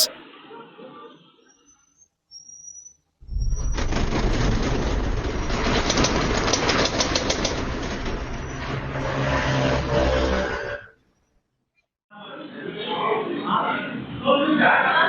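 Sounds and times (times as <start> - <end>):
earthquake rumble: 3.2 - 9.2
rattling and clattering: 3.9 - 8.8.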